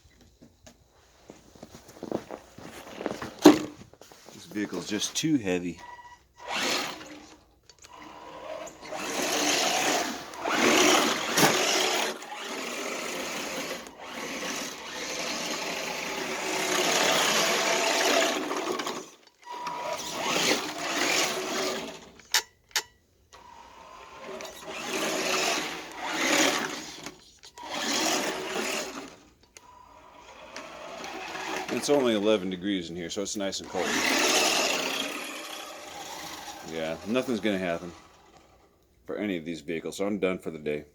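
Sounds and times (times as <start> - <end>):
rc truck motor revving: 6.4 - 22.3, 23.3 - 32.6, 33.2 - 38.8
tires spinning in snow: 8.1 - 22.1, 24.0 - 29.3, 30.0 - 32.4, 33.7 - 38.3.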